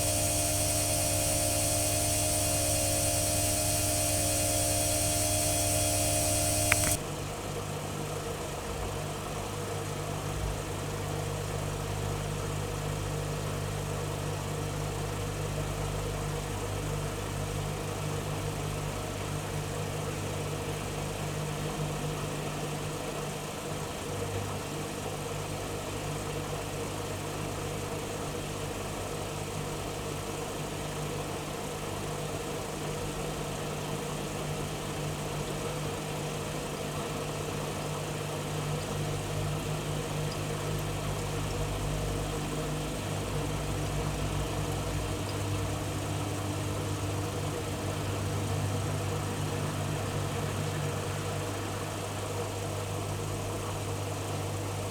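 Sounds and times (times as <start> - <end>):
washing machine motor hum: 0.0 - 7.0.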